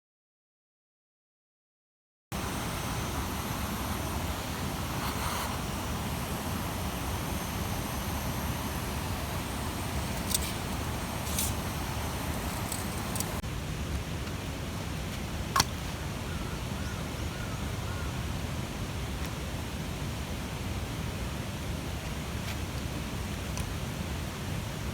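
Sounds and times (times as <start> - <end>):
campfire burning: 2.4 - 13.4
fire crackles and pops: 2.4 - 13.4.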